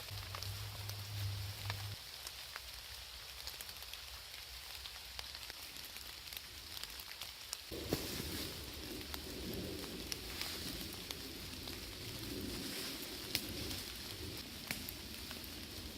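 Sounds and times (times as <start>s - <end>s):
low hum: 0.0s - 2.0s
campfire crackling: 0.0s - 15.9s
steady rain: 0.0s - 15.9s
low rustling noise: 7.7s - 15.9s.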